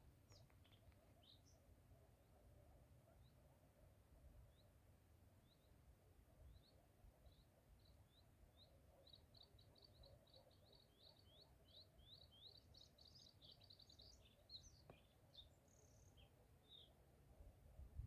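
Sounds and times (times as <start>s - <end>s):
songbird singing: 0.2s - 1.6s, 6.5s - 17.0s.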